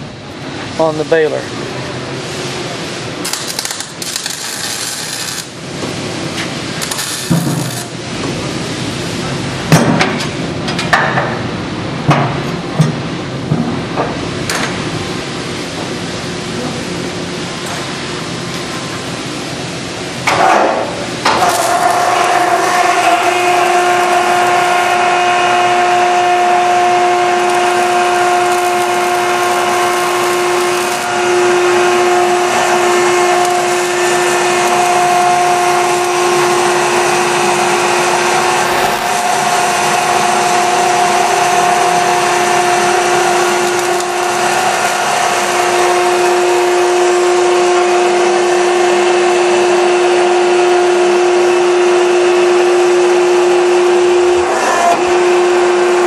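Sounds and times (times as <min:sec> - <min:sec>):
hydraulic pump motor humming: 0:03.2 - 0:08.0, 0:21.3 - 0:49.3.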